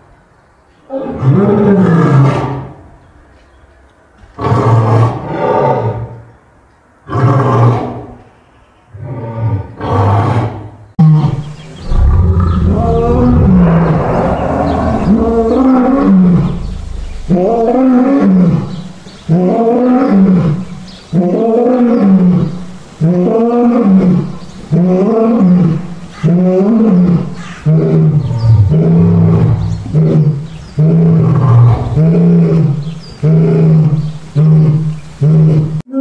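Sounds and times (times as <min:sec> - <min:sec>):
lion roaring: 0:11.2 - 0:20.6, 0:23.1 - 0:35.7.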